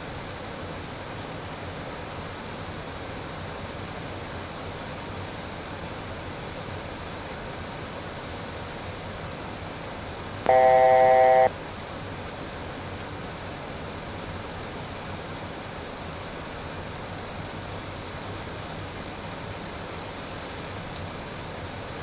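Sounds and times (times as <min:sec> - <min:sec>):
electronic alert tone: 0:10.5 - 0:11.5.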